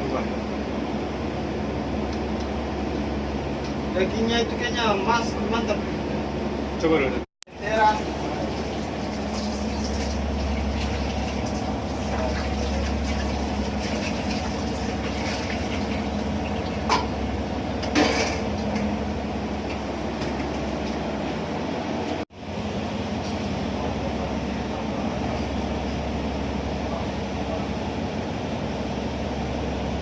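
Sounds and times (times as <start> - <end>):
ship engines droning: 0.0 - 15.1.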